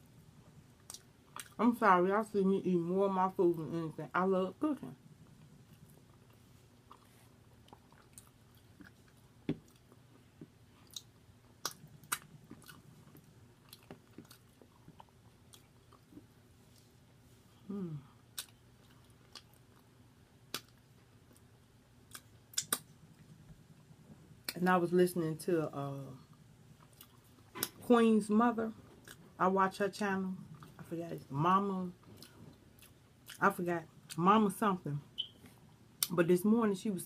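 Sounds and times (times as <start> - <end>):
person chewing: 5.6 - 17.2, 17.8 - 23.2, 26.3 - 27.8
wet mouth smacks and clicks: 22.1 - 22.9.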